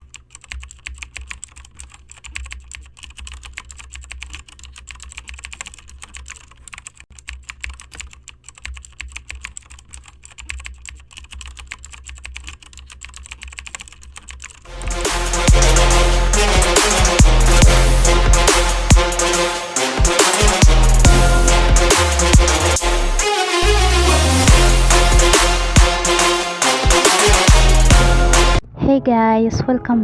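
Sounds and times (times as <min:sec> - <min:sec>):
rapid irregular clicking: 0:00.0 - 0:19.3.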